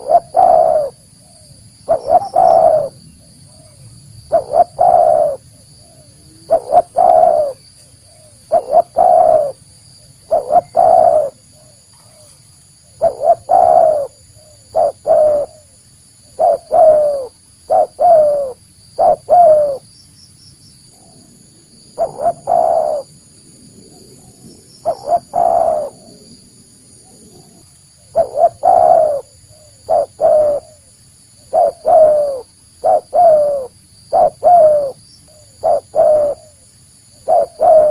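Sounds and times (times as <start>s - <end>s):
dove cooing: 0.0s - 9.6s, 10.2s - 19.8s, 21.9s - 23.2s, 23.9s - 26.4s, 27.0s - 37.9s.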